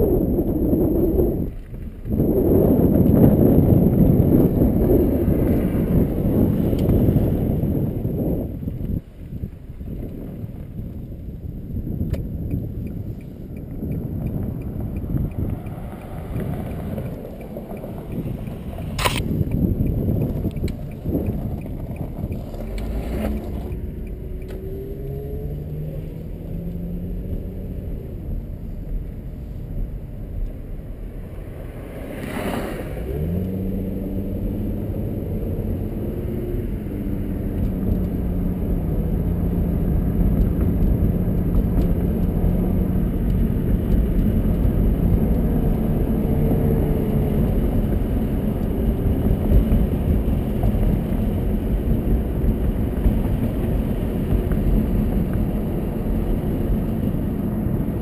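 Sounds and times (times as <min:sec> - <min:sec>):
road noise: 0:00.0 - 0:58.0
car engine accelerating: 0:12.2 - 0:58.0.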